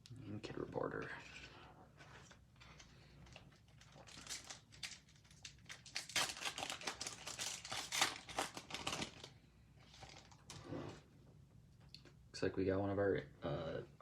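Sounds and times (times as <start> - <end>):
wrapper crinkling and crackling: 2.2 - 10.6.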